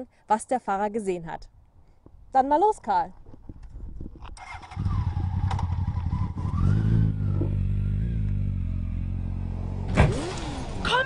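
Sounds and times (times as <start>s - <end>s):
motorcycle engine revving: 4.3s - 11.0s.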